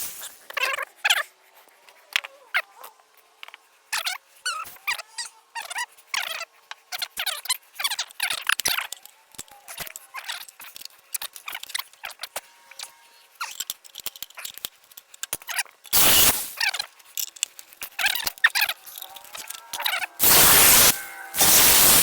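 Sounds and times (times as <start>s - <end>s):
metal scraping and crinkling: 8.9s - 22.0s
loud rushing burst: 20.2s - 22.0s.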